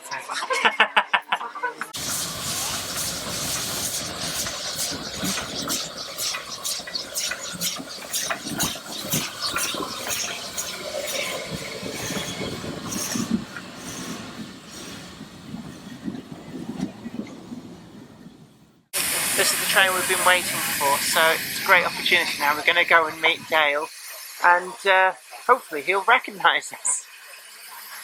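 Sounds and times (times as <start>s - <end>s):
steam hiss: 2.0s - 16.6s, 19.0s - 28.0s
train clanking and knocking: 2.0s - 24.4s.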